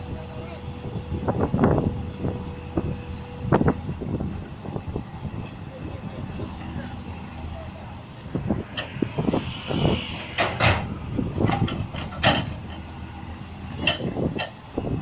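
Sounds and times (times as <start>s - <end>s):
heavy vehicle engine running: 0.0s - 15.0s
metallic clanks and knocks: 10.4s - 12.9s, 13.8s - 14.6s.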